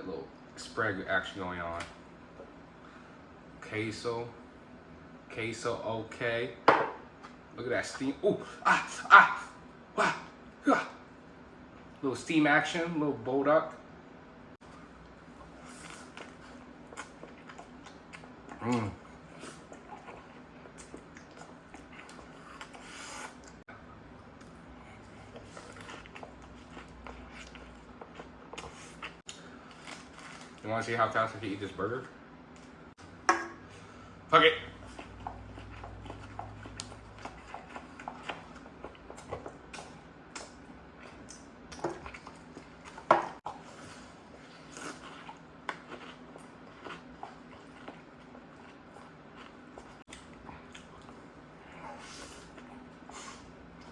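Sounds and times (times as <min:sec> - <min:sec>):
person chewing: 0:15.4 - 0:23.6, 0:24.3 - 0:30.6, 0:34.8 - 0:53.9
lip smacks: 0:35.0 - 0:40.6.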